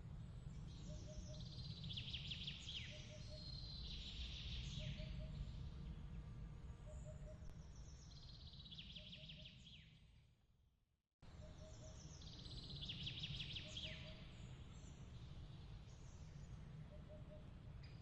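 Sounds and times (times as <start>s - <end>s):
low steady rumble: 0.0s - 8.6s.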